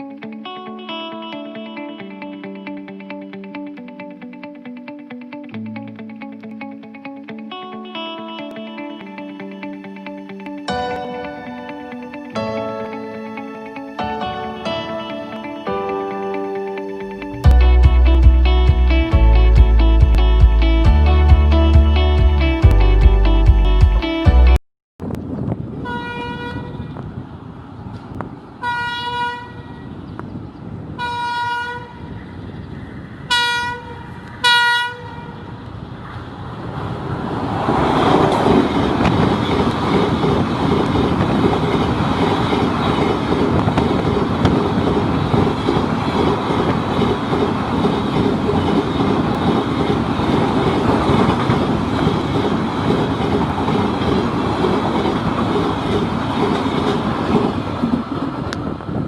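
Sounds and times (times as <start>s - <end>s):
train air horn blasts: 25.8s - 26.8s, 28.6s - 29.8s, 31.0s - 32.0s, 33.3s - 35.4s
train wheels rumbling on rail: 36.0s - 59.0s.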